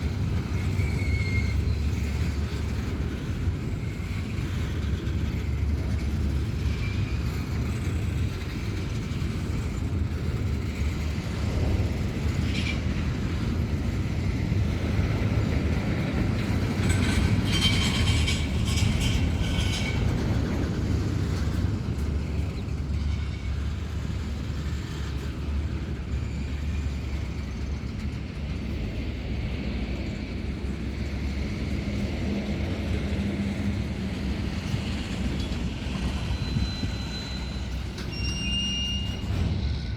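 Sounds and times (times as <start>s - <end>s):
train wagons rumbling: 0.0s - 39.9s
metallic squealing and clatter: 0.3s - 2.6s, 16.2s - 28.1s, 34.2s - 39.9s.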